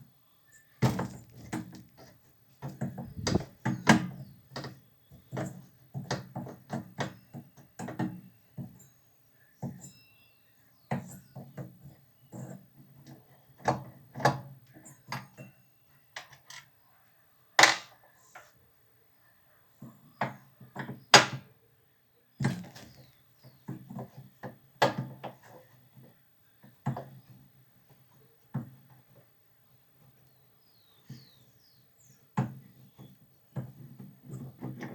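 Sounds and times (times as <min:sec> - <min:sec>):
tools knocking and clattering: 0:00.8 - 0:08.9, 0:09.6 - 0:10.0, 0:10.8 - 0:16.7, 0:32.4 - 0:34.9.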